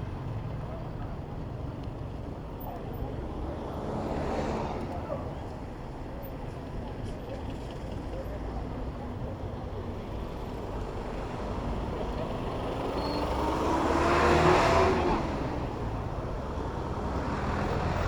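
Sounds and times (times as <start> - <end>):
city traffic noise: 0.0 - 18.0
vehicle engine passing by: 12.1 - 18.0.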